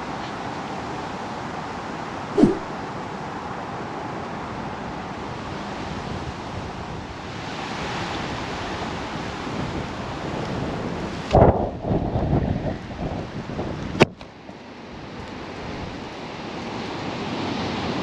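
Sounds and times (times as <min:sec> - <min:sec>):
strong wind blowing through trees: 0:00.0 - 0:18.0
loud thump: 0:02.4 - 0:02.7
wind buffeting microphone: 0:10.6 - 0:14.0.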